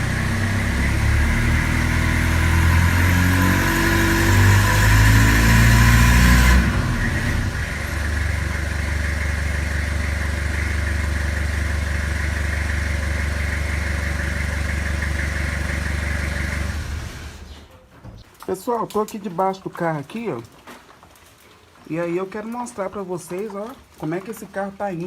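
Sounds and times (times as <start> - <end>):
pickup engine revving and idling: 0.0 - 17.5.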